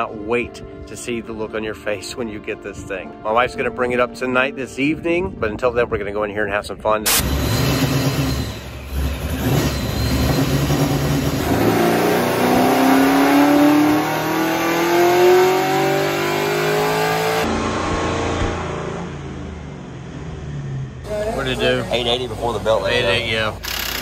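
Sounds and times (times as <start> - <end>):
car engine revving: 7.1 - 24.0.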